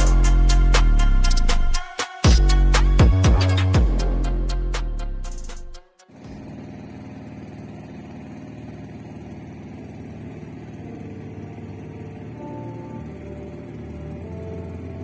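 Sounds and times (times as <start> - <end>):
boat engine droning: 6.1 - 15.0
faint music tones: 9.6 - 15.0.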